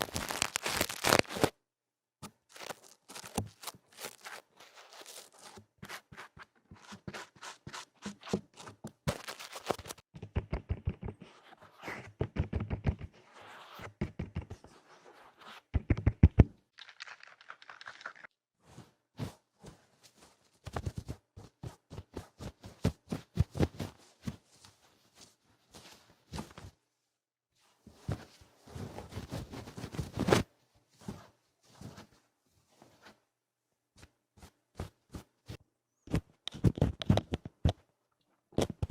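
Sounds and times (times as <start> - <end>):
scratching and rubbing on microphone: 2.5 - 16.4.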